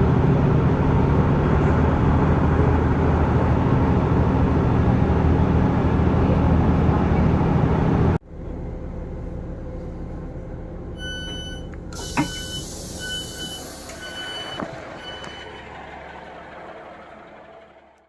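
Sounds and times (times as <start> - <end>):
diesel engine idling: 8.0 - 18.0
electronic warning beeps: 11.0 - 15.5
air hissing: 12.0 - 14.2.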